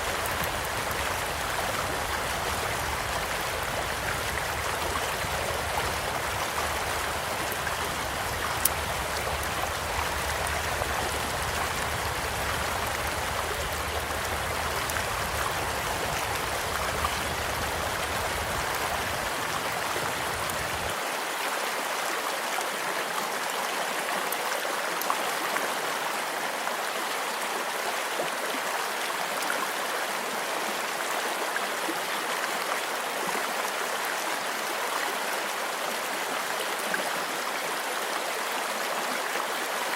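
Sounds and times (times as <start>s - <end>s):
small stream flowing: 0.0s - 39.9s
campfire pops and crackles: 0.1s - 20.9s.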